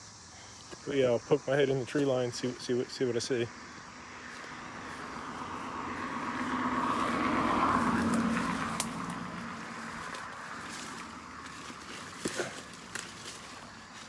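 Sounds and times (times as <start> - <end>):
vehicle passing by: 3.5 - 13.4.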